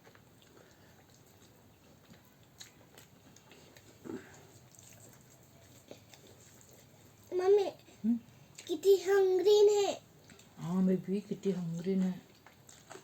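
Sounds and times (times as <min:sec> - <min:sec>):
person chewing food: 0:00.0 - 0:08.7, 0:10.1 - 0:10.6, 0:12.2 - 0:13.0.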